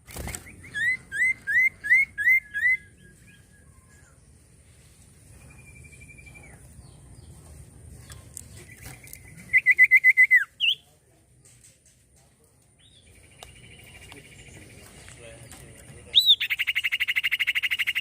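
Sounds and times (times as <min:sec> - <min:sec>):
bird whistling and trilling: 0:00.2 - 0:04.1, 0:08.8 - 0:10.8, 0:16.1 - 0:18.0.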